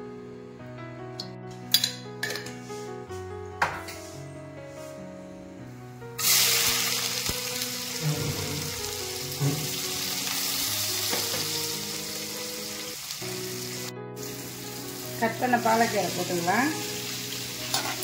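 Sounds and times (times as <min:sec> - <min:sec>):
shallots sizzling in hot oil: 0:06.2 - 0:18.0.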